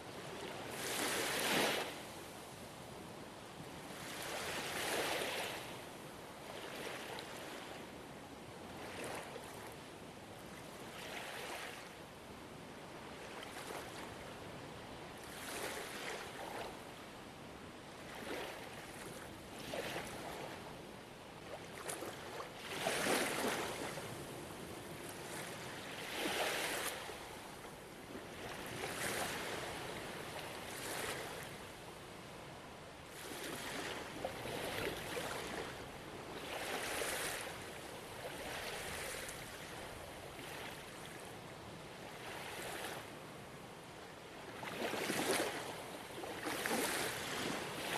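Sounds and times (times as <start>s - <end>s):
ocean waves washing onto shore: 21.4s - 32.3s, 44.5s - 47.9s.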